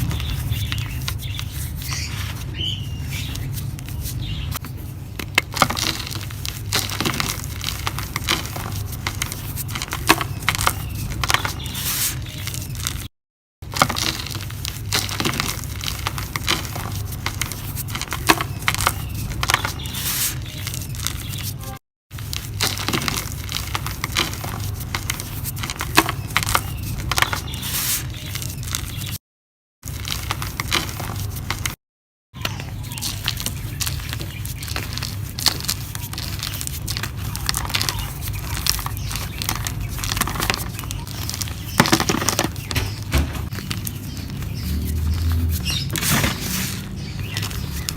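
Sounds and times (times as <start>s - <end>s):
dry mud cups crumbling: 0.0s - 21.6s, 22.2s - 29.2s, 29.8s - 31.8s, 32.4s - 47.9s.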